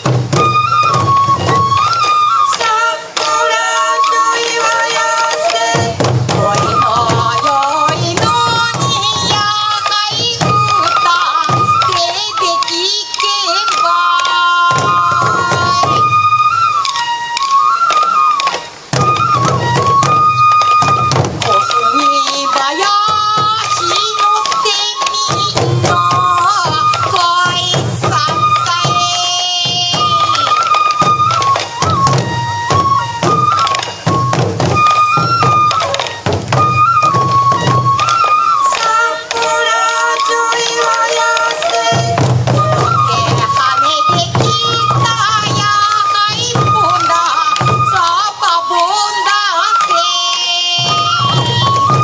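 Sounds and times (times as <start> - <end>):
taiko drum strokes: 0.0 - 48.0, 50.8 - 52.0
bamboo flute melody: 0.0 - 52.0
people singing: 2.5 - 16.1, 38.6 - 51.3.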